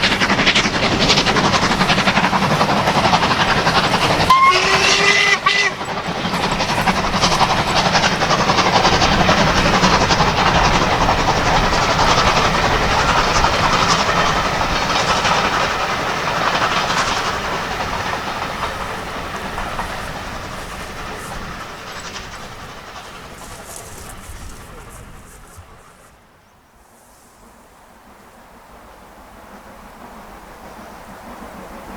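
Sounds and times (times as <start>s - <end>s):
steam train passing: 0.0s - 31.9s
locomotive whistle: 3.2s - 11.2s.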